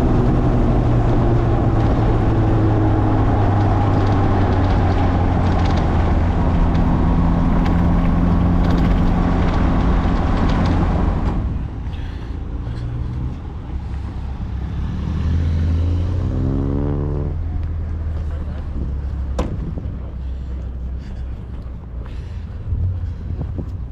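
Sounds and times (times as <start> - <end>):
sports car engine revving: 0.0 - 11.6, 14.2 - 19.1.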